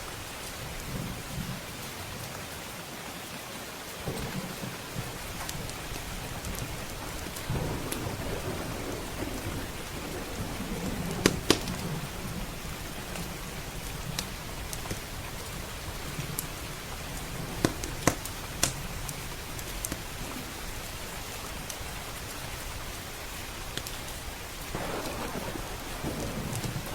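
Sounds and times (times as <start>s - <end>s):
heavy rain: 0.0s - 26.9s
thunder rolling: 4.0s - 14.6s, 24.7s - 26.9s
wood fire popping: 4.1s - 12.3s, 17.2s - 20.0s, 24.8s - 26.9s.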